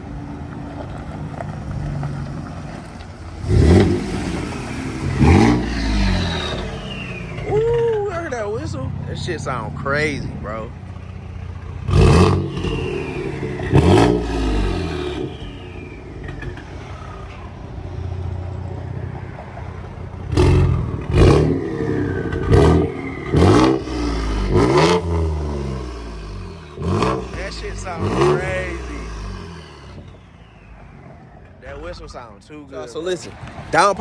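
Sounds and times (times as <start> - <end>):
engine idling: 0.0 - 34.0
engine revving: 0.0 - 34.0
turbo whistle: 12.1 - 16.8.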